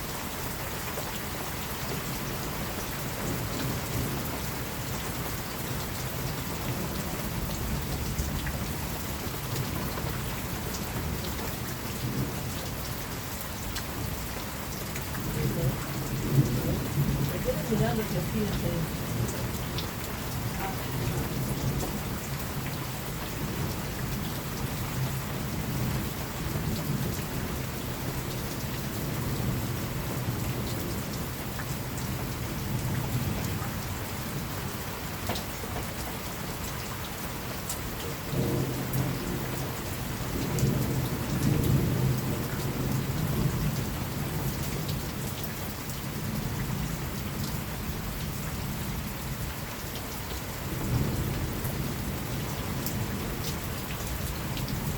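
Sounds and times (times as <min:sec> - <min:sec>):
steady rain falling: 0:00.0 - 0:54.9
distant thunder rumbling: 0:15.2 - 0:22.2, 0:50.6 - 0:53.5.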